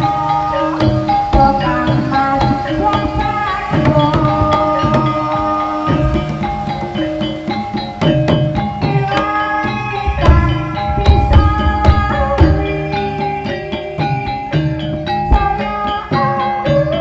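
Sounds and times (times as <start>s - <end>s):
hand drums beating: 0.0s - 17.0s
struck ringing pitched notes: 0.0s - 17.0s
heavy low drum strokes: 10.0s - 13.2s.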